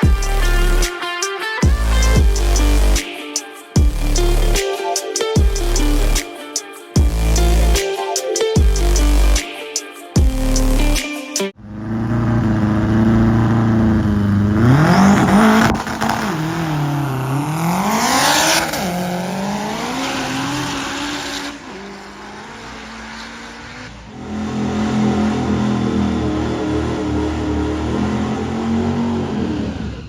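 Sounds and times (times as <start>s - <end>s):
car engine revving: 11.6s - 30.0s.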